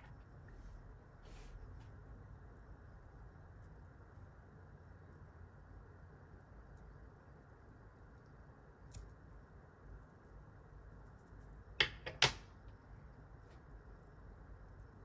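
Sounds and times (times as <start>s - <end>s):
small scissors snipping: 8.8s - 9.2s.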